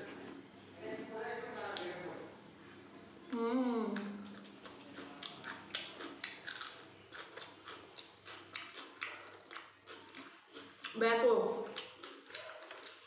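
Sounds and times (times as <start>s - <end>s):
person crunching cucumber: 4.0s - 11.0s, 11.6s - 13.0s.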